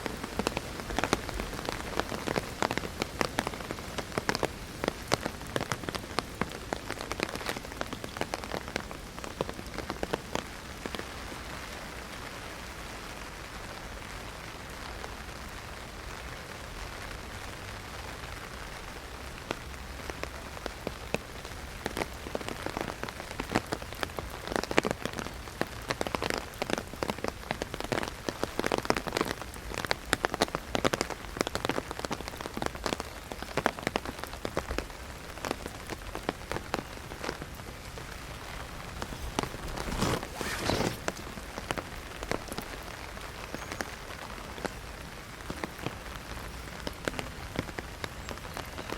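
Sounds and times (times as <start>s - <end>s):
raindrops hitting umbrella: 0.0s - 48.9s
rain hissing: 18.2s - 46.5s.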